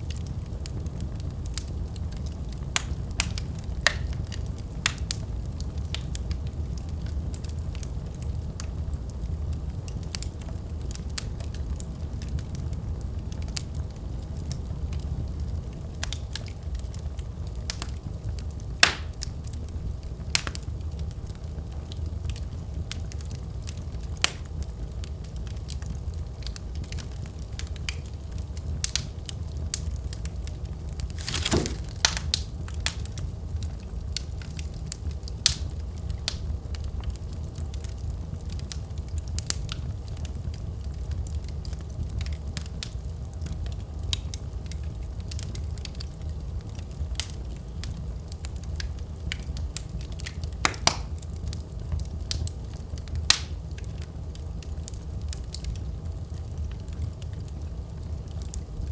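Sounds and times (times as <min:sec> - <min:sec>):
fire crackling and popping: 0:00.0 - 0:58.9
fire flames rumbling: 0:00.0 - 0:58.9.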